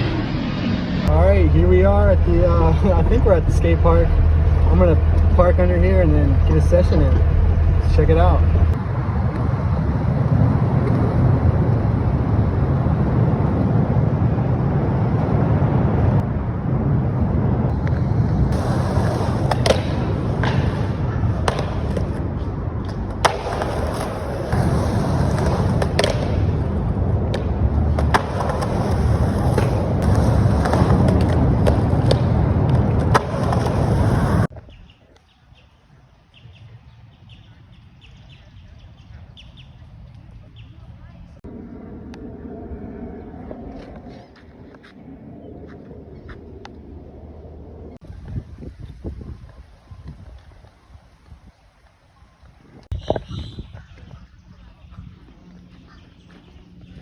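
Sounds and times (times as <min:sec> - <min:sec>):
skateboard wheels rolling on concrete: 0:00.0 - 0:57.0
skateboard clacking on ground: 0:18.5 - 0:34.5.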